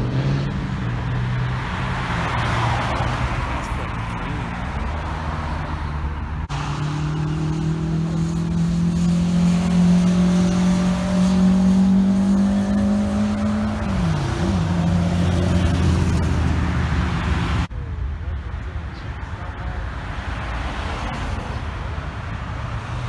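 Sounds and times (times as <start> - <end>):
car engine accelerating: 0.0 - 17.7.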